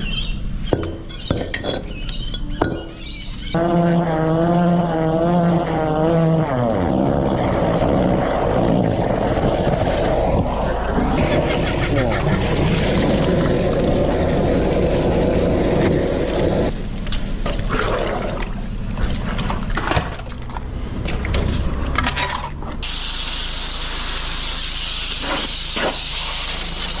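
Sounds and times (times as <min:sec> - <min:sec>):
spraying water hiss: 0:04.6 - 0:16.7, 0:22.8 - 0:27.0
water gurgling in a drain: 0:06.8 - 0:16.7, 0:17.5 - 0:18.7.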